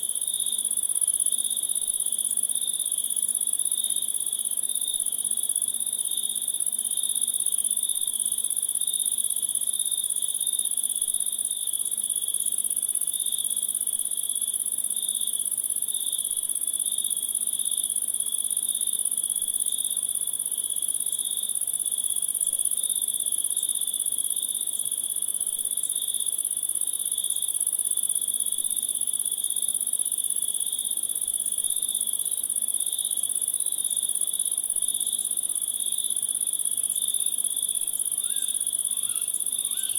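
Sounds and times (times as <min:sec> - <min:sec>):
crickets chirping: 0:16.8 - 0:39.9.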